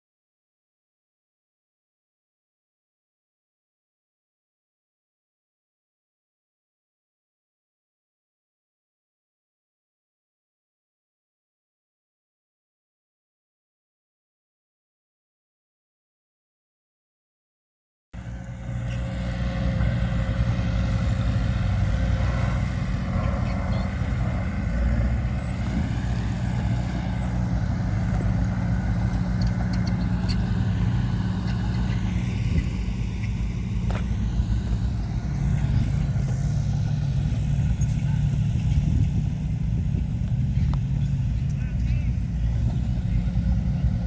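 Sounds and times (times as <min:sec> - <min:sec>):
diesel engine under load: 0:18.2 - 0:44.0.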